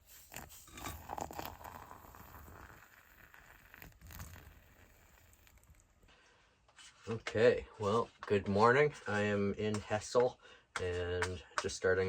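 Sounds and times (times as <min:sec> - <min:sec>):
faint rustling and handling: 0:03.1 - 0:10.3.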